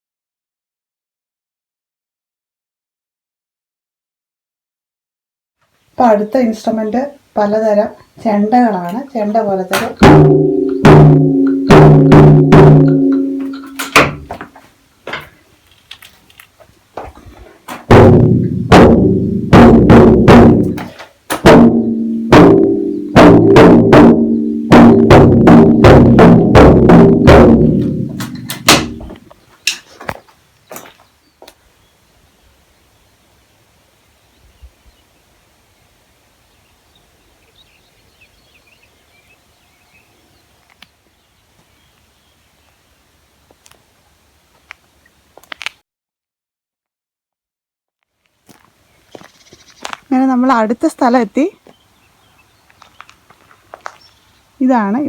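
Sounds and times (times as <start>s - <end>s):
tuned drums struck: 9.7s - 14.5s, 17.9s - 29.3s.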